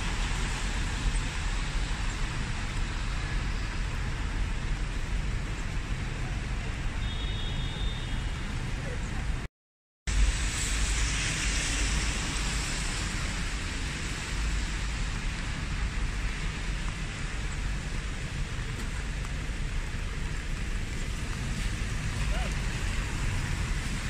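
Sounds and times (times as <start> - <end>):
rain on a wet street: 0.0 - 9.5, 10.1 - 24.0.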